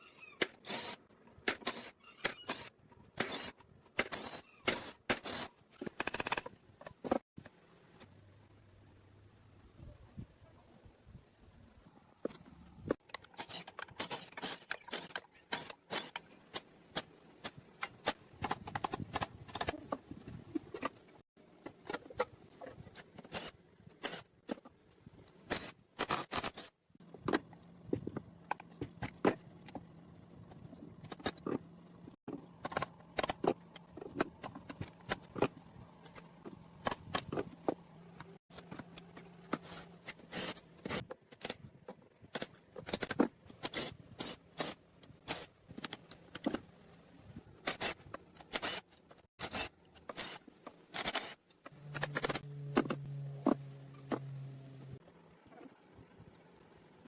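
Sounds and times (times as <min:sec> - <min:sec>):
low steady hum: 0:51.6 - 0:57.0.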